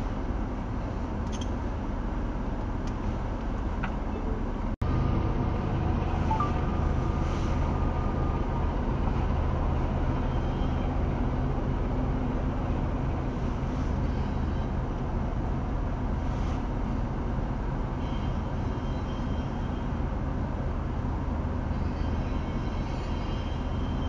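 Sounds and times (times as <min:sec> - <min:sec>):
freight train rumbling past: 0:01.8 - 0:24.0.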